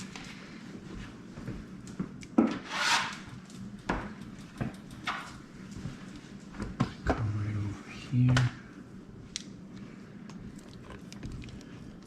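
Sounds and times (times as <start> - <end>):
utensil scraping rub: 2.6 - 3.3
light utensil clicks: 3.6 - 5.4.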